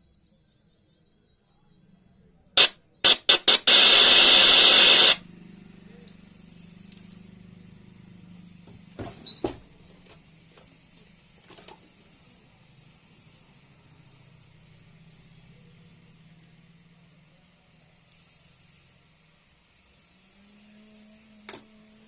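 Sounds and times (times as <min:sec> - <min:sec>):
loud hissing: 0:02.6 - 0:05.2.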